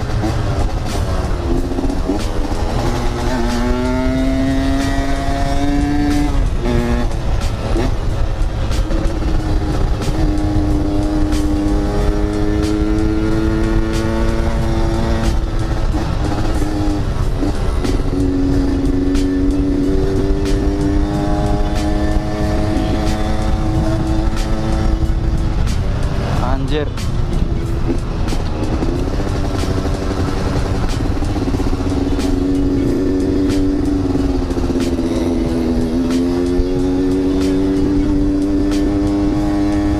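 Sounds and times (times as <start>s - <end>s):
two-stroke motorcycle engine running: 0.0s - 39.9s
wind rumble: 0.0s - 39.9s.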